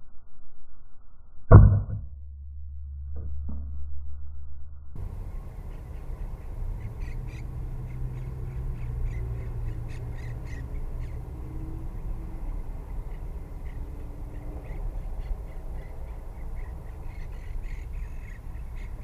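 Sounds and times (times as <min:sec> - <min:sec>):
steady low rumble: 0:00.0 - 0:19.0
parakeets squawking: 0:05.1 - 0:11.4, 0:12.4 - 0:19.0.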